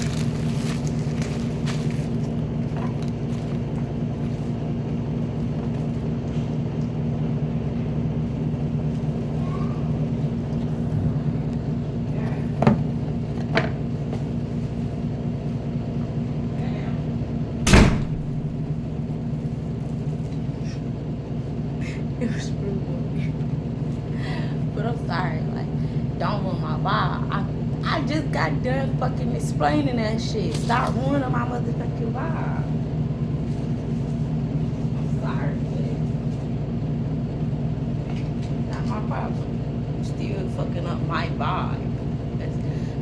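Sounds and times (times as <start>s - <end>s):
low mechanical hum: 0.0s - 43.0s
loud knock: 17.7s - 18.6s.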